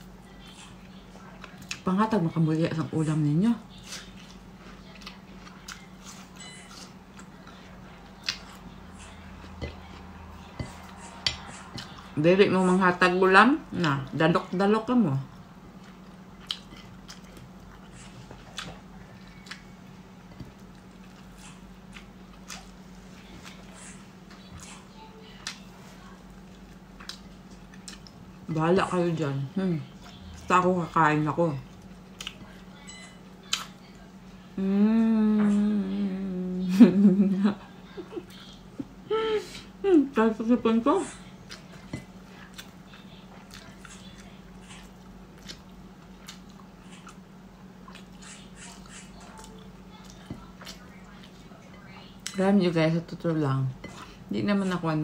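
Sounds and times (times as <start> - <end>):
steady low hum: 0.0 - 55.0
person chewing with mouth smacks: 3.8 - 12.2, 15.8 - 24.8, 26.4 - 28.2, 31.7 - 32.6, 41.4 - 52.4.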